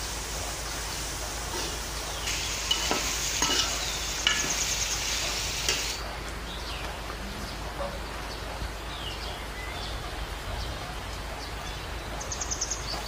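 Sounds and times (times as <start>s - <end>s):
meat and onions sizzling: 0.0s - 6.0s
metal spoon clinking on pot: 2.6s - 4.6s.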